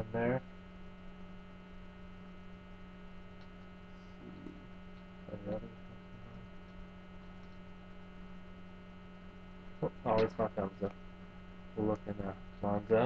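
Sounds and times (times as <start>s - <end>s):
electrical mains hum: 0.0s - 13.0s
man's voice murmuring: 4.2s - 4.6s.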